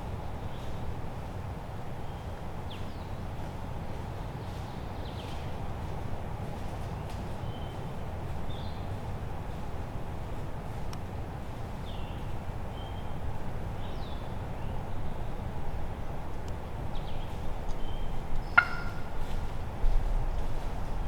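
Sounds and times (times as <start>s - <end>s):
small birds chirping: 16.9s - 19.4s
wild turkey gobble: 18.6s - 19.4s.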